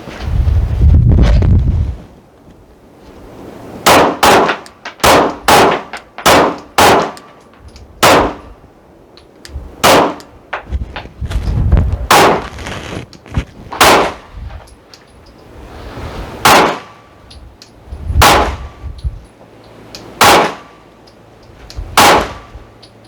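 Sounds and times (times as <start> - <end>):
wind buffeting microphone: 0.0 - 2.2, 10.4 - 14.8, 17.4 - 19.3
pistol shots: 3.9 - 7.2, 8.0 - 8.4, 9.8 - 10.2, 13.8 - 14.2, 16.4 - 16.9, 20.2 - 20.7, 22.0 - 22.5.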